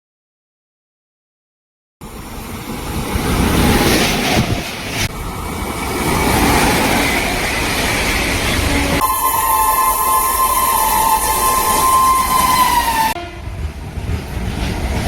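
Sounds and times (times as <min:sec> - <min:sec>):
train passing at speed: 0:02.0 - 0:15.0
multi-note train horn: 0:08.7 - 0:13.6.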